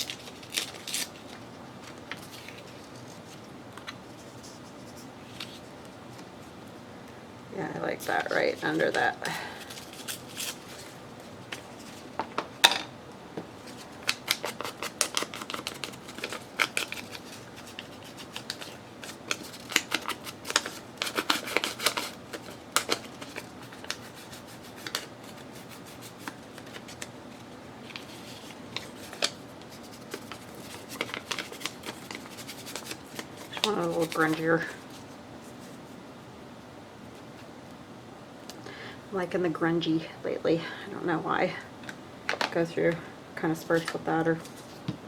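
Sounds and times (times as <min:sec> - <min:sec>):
paper rustling and sliding: 0:13.6 - 0:36.0.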